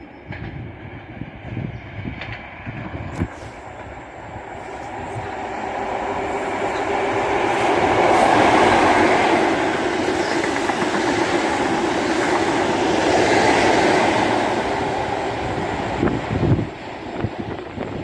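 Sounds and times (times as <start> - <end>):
high-speed train passing: 0.0 - 18.0.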